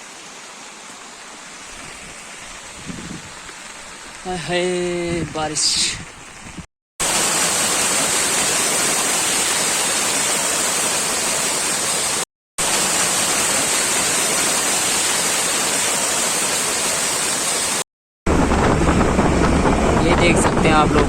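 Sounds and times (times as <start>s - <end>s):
heavy rain hissing: 0.0s - 17.8s.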